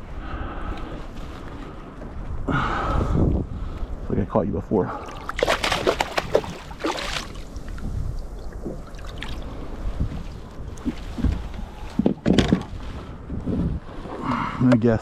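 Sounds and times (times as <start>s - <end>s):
low wind rumble on microphone: 0.0s - 15.0s
water sounds: 4.9s - 13.1s
splashy crackle: 5.2s - 7.8s.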